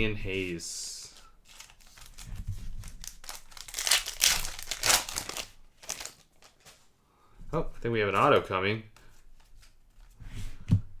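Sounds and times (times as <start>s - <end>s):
plastic wrapper crinkling: 1.4s - 6.8s.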